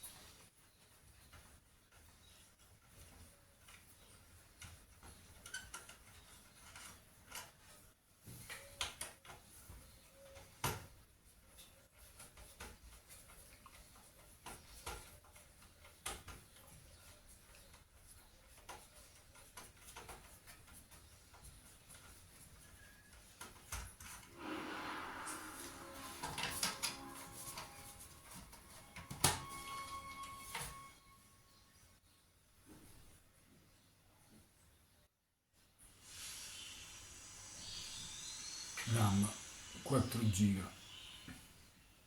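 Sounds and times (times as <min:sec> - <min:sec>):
computer parts clicking and knocking: 0:26.0 - 0:30.8.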